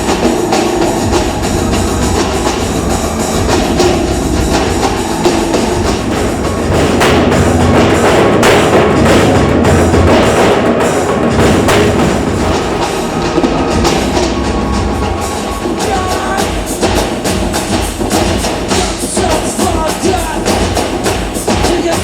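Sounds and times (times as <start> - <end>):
steady low bass: 0.0 - 17.0
drummers pounding steel drums: 0.0 - 22.0.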